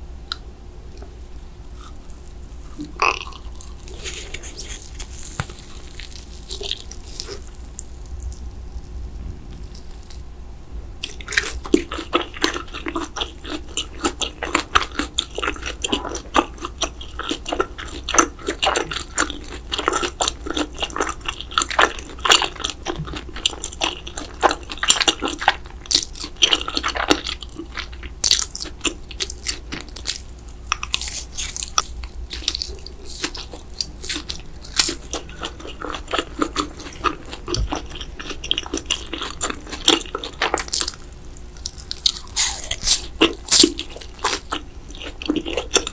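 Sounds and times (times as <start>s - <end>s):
person chewing crunchy food: 0.3s - 10.2s, 11.0s - 45.9s.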